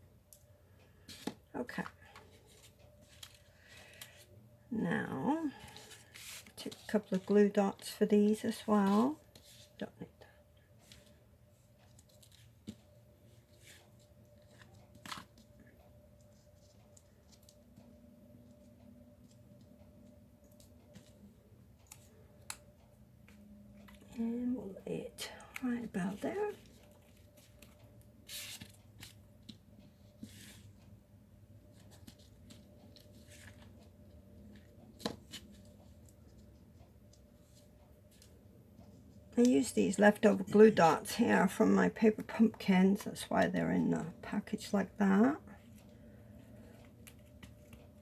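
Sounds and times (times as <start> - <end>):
paper rustling and ticking: 11.8 - 24.2, 25.2 - 31.0, 31.6 - 43.4, 45.6 - 48.0
paper rustling: 26.1 - 30.9, 31.7 - 33.9.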